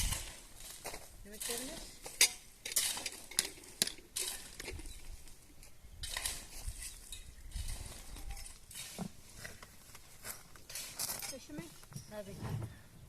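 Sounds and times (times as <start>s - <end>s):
scraping and rustling: 0.0s - 12.8s
metal kitchenware clinking: 1.4s - 5.0s.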